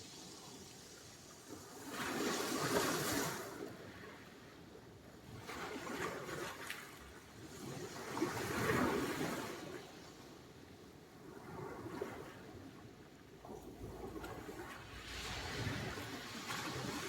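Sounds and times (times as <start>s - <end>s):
waves breaking on shore: 0.0s - 4.2s, 5.4s - 10.1s, 13.6s - 17.0s.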